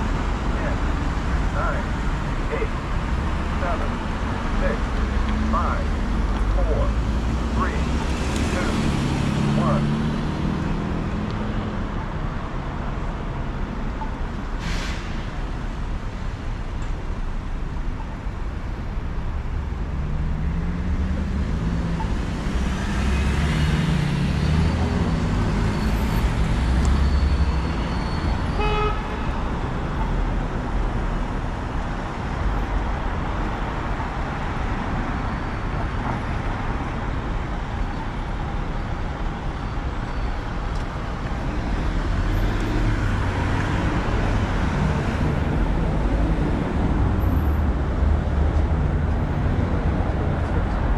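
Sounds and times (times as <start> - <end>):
cars passing: 0.0 - 50.9
car horn toot: 28.5 - 29.4.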